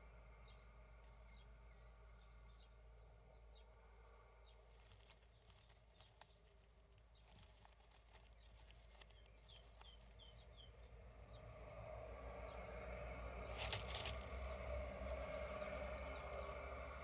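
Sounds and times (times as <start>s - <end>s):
bird rustling on straw nest: 7.2s - 9.7s, 13.5s - 14.4s
short high bird chirps: 9.2s - 10.8s.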